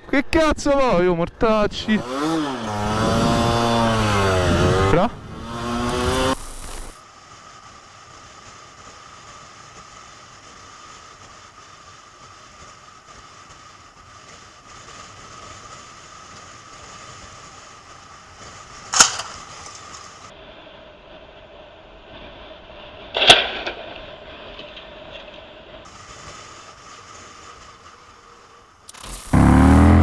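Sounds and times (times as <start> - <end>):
road rumble: 1.8 - 7.0, 28.9 - 30.0.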